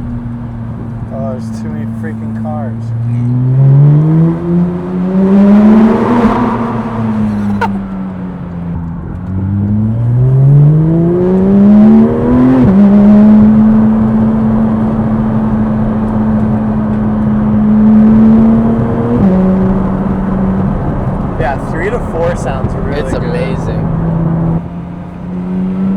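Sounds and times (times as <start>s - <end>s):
sports car engine accelerating: 0.0s - 25.9s.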